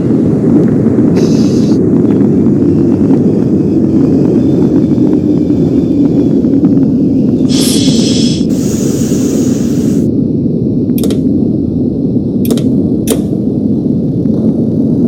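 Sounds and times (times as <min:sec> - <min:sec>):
train rumbling on track: 0:00.0 - 0:10.2
brief hiss: 0:07.5 - 0:10.1
wheel clicks on rails: 0:10.9 - 0:11.2.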